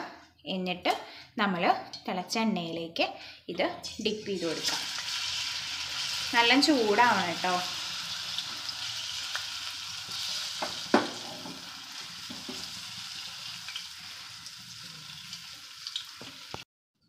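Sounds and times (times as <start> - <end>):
batter frying in hot oil: 4.0 - 16.7.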